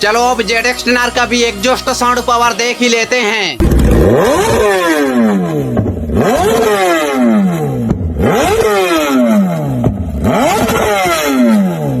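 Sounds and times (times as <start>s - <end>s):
motorcycle engine revving: 3.6s - 12.0s.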